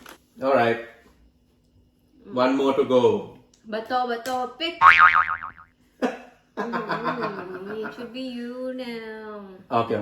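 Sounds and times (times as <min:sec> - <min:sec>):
cartoon boing sound effect: 0:04.8 - 0:05.7.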